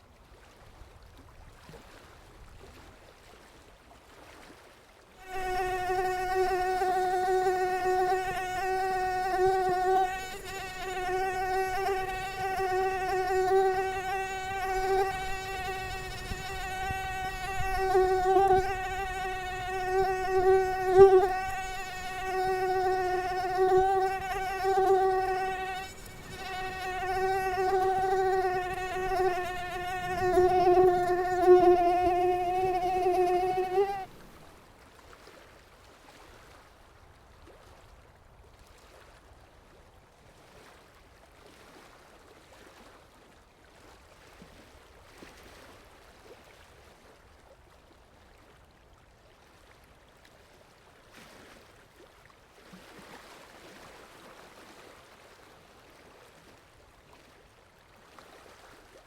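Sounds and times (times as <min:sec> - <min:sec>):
mosquito whining: 0:05.2 - 0:34.2
faint background hiss: 0:05.2 - 0:34.8.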